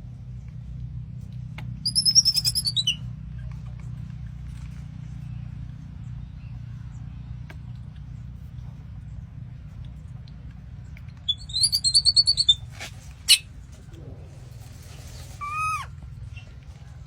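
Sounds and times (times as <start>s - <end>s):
steady low hum: 0.0s - 17.0s
high-pitched animal chirps: 1.8s - 3.0s, 11.3s - 12.6s, 15.4s - 15.9s.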